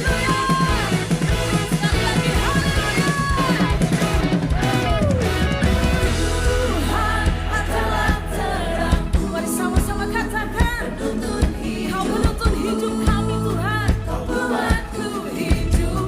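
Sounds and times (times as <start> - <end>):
drum kit hits: 0.0 - 10.0
bass line: 0.0 - 16.0
person singing: 6.0 - 16.0.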